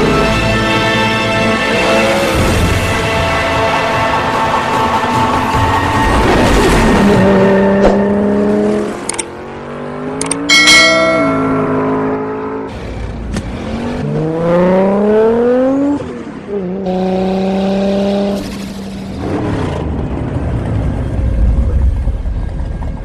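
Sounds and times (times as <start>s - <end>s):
car engine revving: 11.7s - 20.1s.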